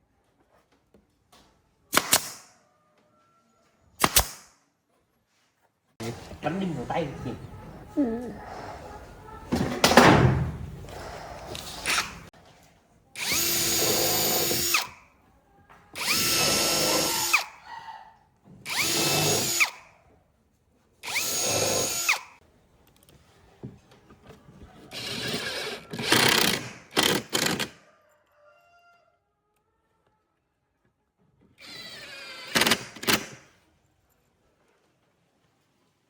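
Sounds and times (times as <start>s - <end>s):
electric drill bursts: 13.2s - 14.9s, 16.0s - 17.6s, 18.7s - 19.8s, 21.0s - 22.4s, 25.0s - 27.6s.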